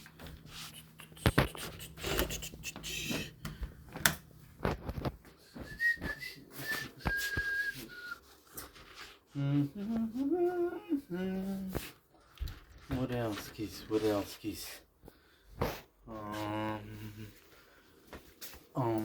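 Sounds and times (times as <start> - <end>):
man whistling high notes: 5.5 - 8.4
man humming: 9.3 - 11.9, 16.1 - 17.4.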